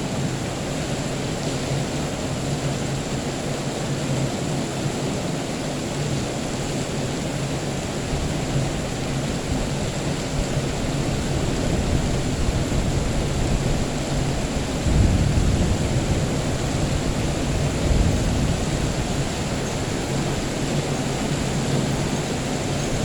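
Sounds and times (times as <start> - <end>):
heavy rain hissing: 0.0 - 23.0
distant thunder rumble: 8.1 - 23.0.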